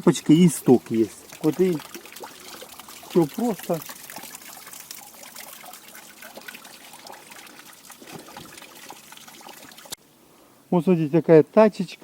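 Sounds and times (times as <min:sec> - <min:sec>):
fountain water trickling: 0:00.0 - 0:10.0.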